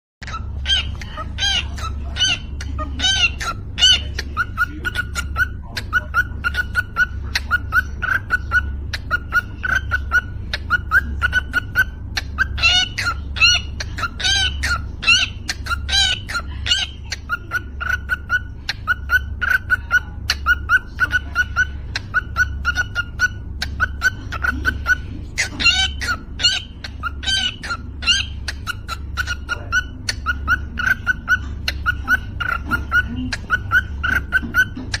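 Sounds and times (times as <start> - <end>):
cockatiel chirps and whistles: 3.0 - 35.0.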